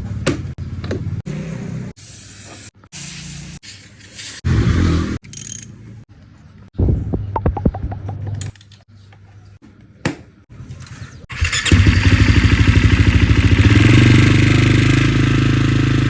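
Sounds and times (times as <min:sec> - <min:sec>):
dirt bike engine starting and running: 0:04.5 - 0:05.6, 0:10.6 - 0:16.0.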